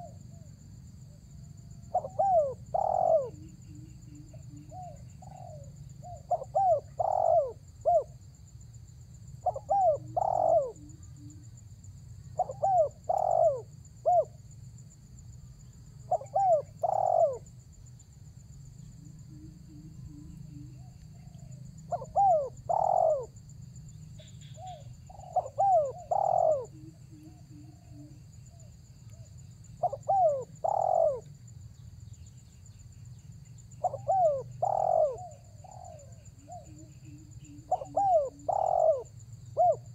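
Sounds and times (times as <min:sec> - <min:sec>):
dove cooing: 0:00.0 - 0:00.5, 0:01.7 - 0:08.2, 0:09.4 - 0:11.4, 0:12.4 - 0:14.4, 0:16.0 - 0:17.6, 0:19.1 - 0:23.4, 0:24.4 - 0:31.3, 0:33.8 - 0:39.9.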